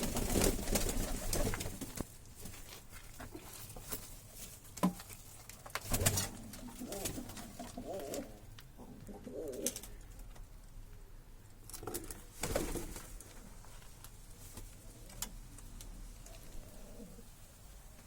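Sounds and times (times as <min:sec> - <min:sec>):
pigeon cooing: 0:06.2 - 0:10.0, 0:16.2 - 0:17.4.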